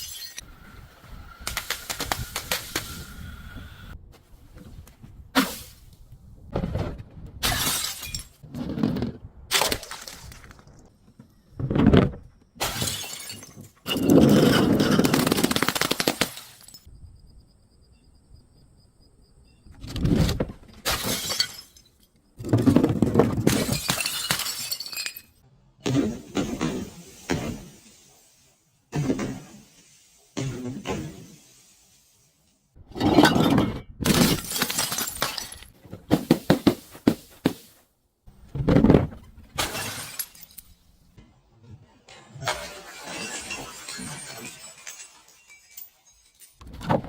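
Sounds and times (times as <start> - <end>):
glass bottles breaking and crushing: 0.0 - 0.4, 7.4 - 8.4, 12.6 - 16.9, 20.8 - 25.4, 33.0 - 37.6, 38.8 - 41.0, 42.2 - 47.0.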